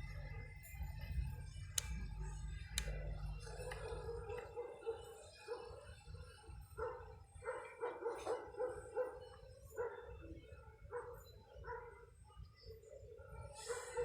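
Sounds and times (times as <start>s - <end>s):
low wind rumble on microphone: 0.0s - 4.6s
dog barking: 3.5s - 6.0s, 6.7s - 12.2s, 13.6s - 14.0s.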